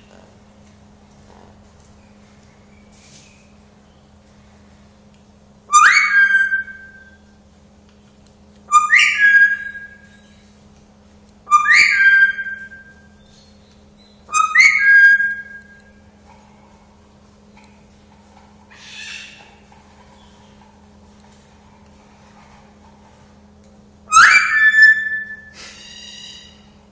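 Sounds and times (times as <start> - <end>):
parrot whistling: 5.7 - 7.2, 8.7 - 10.4, 11.5 - 13.2, 14.0 - 16.0, 24.1 - 26.7.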